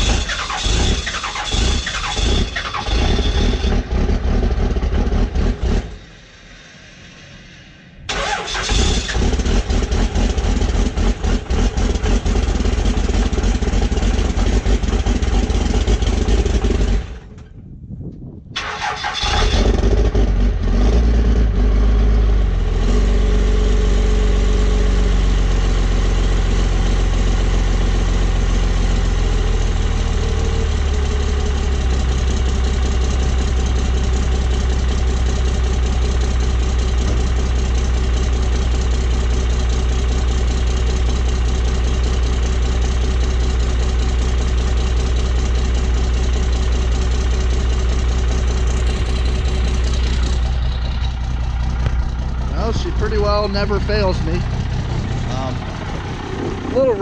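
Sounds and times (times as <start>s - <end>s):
starter motor cranking: 0.0s - 3.8s, 8.1s - 9.6s
diesel engine idling: 0.0s - 17.4s, 22.0s - 57.0s.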